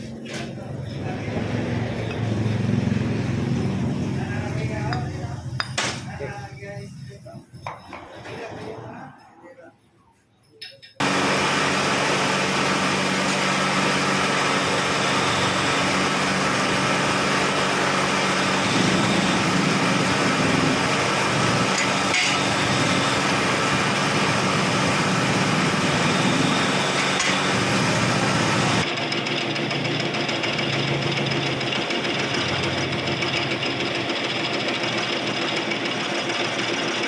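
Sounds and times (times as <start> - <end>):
low motor hum: 0.0 - 7.5.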